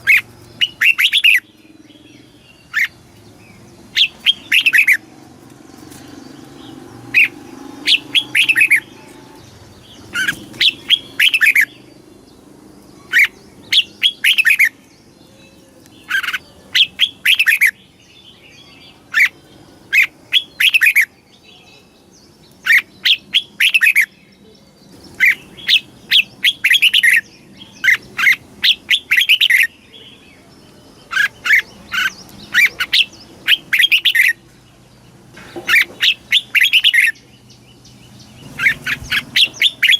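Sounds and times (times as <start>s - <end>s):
bulbul singing whistled notes: 0.0s - 5.0s, 6.7s - 11.9s, 25.1s - 29.9s, 36.0s - 39.9s.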